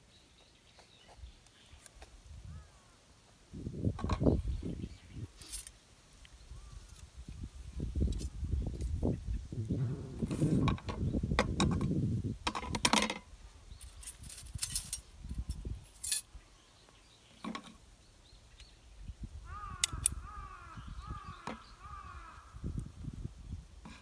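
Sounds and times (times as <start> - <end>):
metal parts clinking: 5.4 - 5.7, 13.8 - 16.3.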